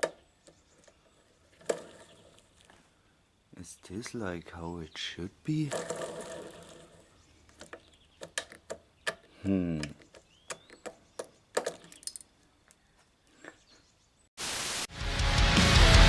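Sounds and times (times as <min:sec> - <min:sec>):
person humming: 0:09.4 - 0:10.0
small metal parts clinking: 0:11.6 - 0:12.4
loud heavy metal music: 0:14.9 - 0:16.0.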